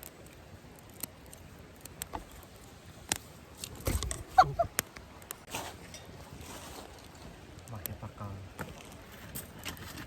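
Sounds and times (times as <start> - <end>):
campfire crackling: 0.0 - 10.0
low rustle: 5.4 - 7.6.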